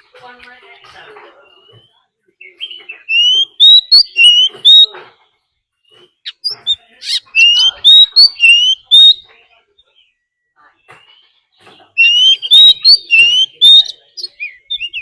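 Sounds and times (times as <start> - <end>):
bird singing whistled notes: 1.6 - 4.9, 5.8 - 9.2, 11.9 - 15.0.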